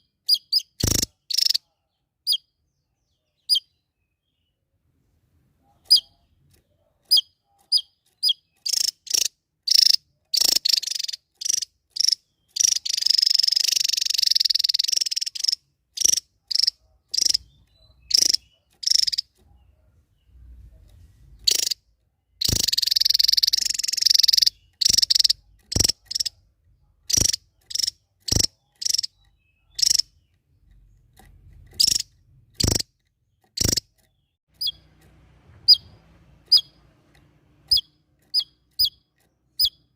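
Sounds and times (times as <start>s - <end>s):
buzzy bird trill: 0.0s - 1.7s, 5.8s - 6.3s, 7.1s - 19.7s, 21.4s - 21.8s, 22.4s - 26.4s, 27.0s - 31.1s, 31.7s - 34.9s, 35.6s - 36.8s, 37.6s - 39.9s
songbird chirping: 0.0s - 39.9s.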